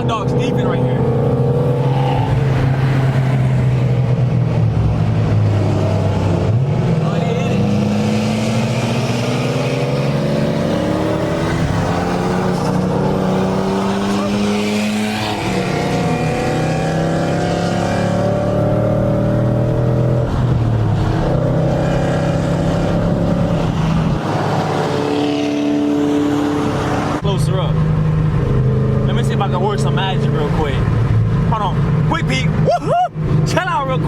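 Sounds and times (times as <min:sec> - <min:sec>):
car engine accelerating: 0:00.0 - 0:34.0.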